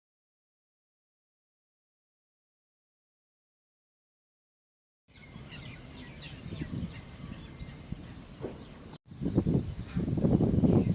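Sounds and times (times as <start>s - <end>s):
bird chirps: 5.1s - 10.9s
insects chirring: 5.1s - 10.9s.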